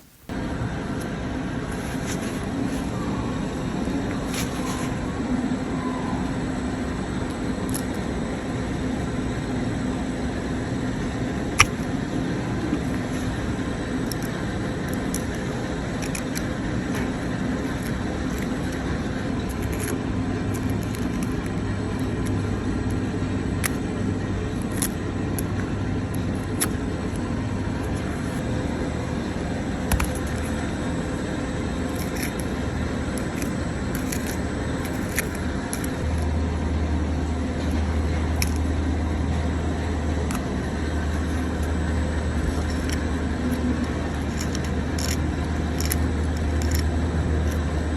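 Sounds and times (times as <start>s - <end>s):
machine humming: 0.0s - 47.9s
sharp clicks and ticks: 29.8s - 30.6s, 41.2s - 47.8s.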